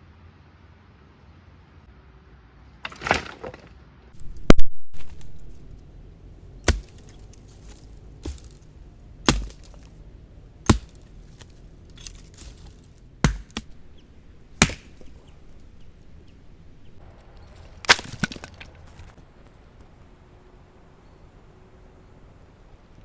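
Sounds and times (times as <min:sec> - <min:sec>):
blade chopping wood: 0:04.2 - 0:19.2.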